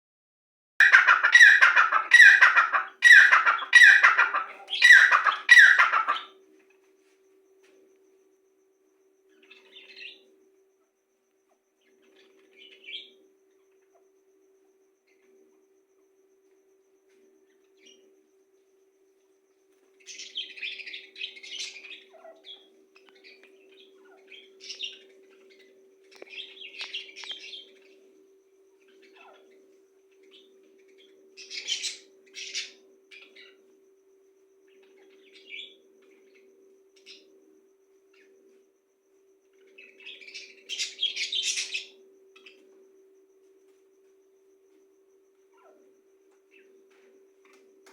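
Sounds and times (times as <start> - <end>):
birds squawking harshly: 0.8 - 6.3
faint steady hum: 0.8 - 47.9
bird chirping softly: 0.9 - 47.8.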